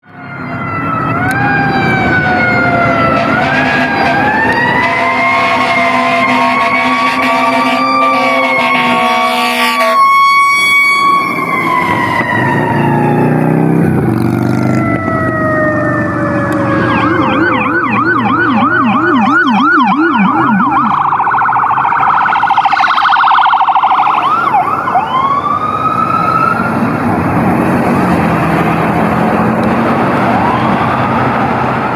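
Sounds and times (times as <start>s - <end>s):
electronic sirens warbling and wailing: 0.0s - 31.9s
mechanical siren winding down: 0.1s - 9.0s, 9.8s - 27.0s
air horns blowing: 3.0s - 11.4s.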